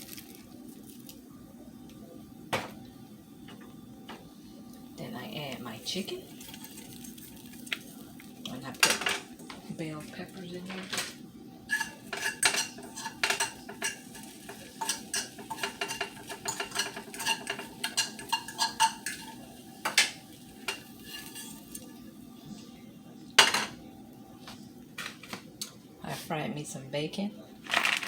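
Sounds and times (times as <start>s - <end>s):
utensil clinking against a bowl: 6.2s - 22.0s.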